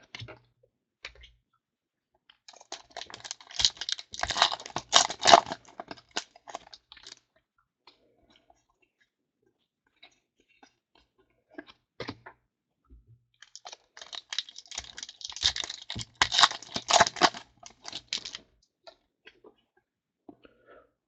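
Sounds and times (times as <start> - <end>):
foil wrapper tearing and crinkling: 2.5 - 7.2, 13.4 - 18.4.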